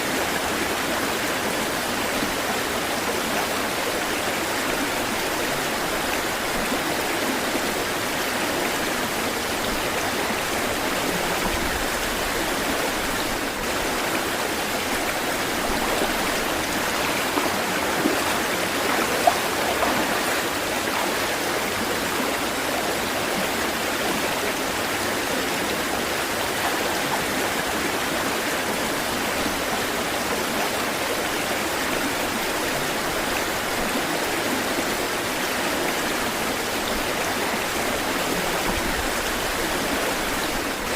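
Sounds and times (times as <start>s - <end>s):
water rushing: 0.0s - 40.9s
water splashes: 4.5s - 22.5s.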